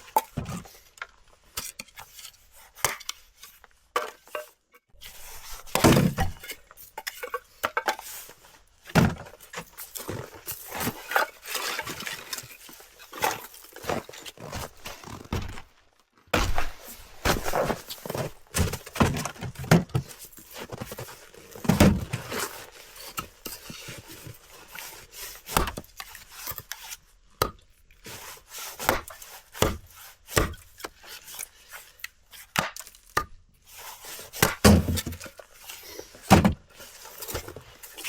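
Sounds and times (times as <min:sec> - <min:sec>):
knocks and scrapes of handling: 0:00.0 - 0:27.0, 0:33.7 - 0:38.0
heavy thuds: 0:16.4 - 0:17.8.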